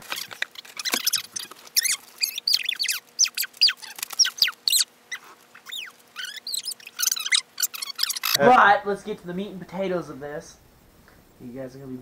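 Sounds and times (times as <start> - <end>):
bird chirping: 0.2 - 8.4.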